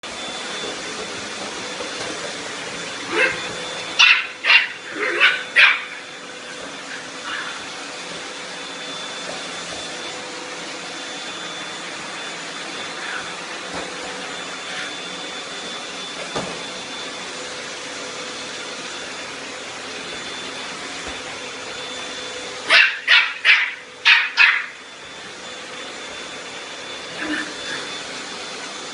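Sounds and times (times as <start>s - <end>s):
vacuum cleaner running: 0.0s - 28.9s
small dog barking: 3.1s - 3.4s, 4.0s - 6.0s, 22.7s - 24.8s.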